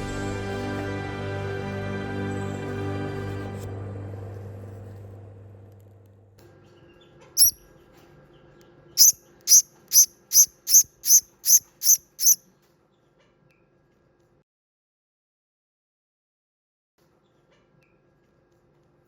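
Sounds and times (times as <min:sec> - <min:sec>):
small bird chirping: 0:09.0 - 0:12.4.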